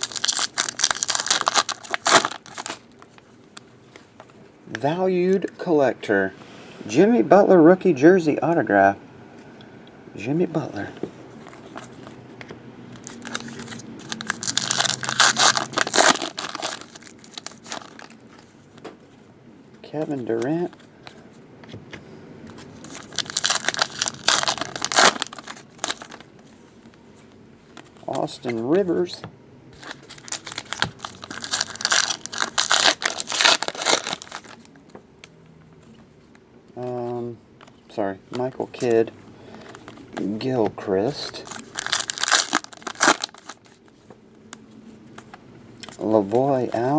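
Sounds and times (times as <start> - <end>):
foil wrapper crinkling: 0.0 - 3.2, 13.0 - 18.2, 22.8 - 26.3, 29.8 - 34.7, 41.2 - 43.8.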